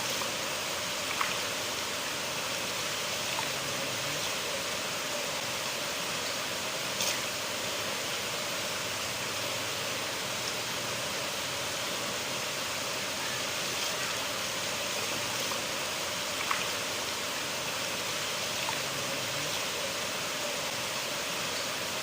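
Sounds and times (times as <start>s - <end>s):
river water rushing: 0.0s - 22.0s
faint splashes: 0.1s - 1.9s, 13.2s - 20.9s.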